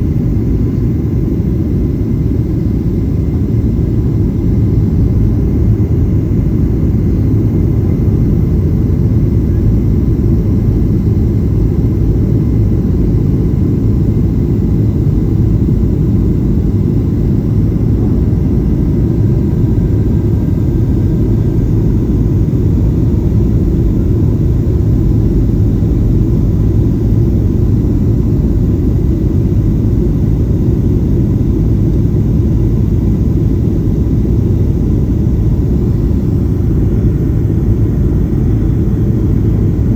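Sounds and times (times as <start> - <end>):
jet engine rumble in cabin: 0.0 - 39.9.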